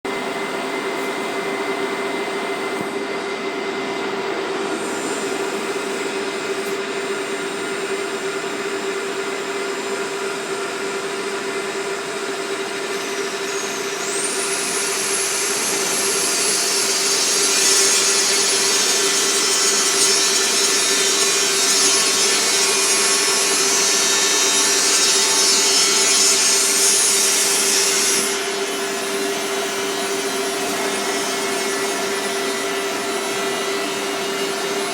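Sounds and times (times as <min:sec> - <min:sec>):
lathe humming: 0:10.4 - 0:34.9
loud high hiss with whine: 0:12.6 - 0:34.9.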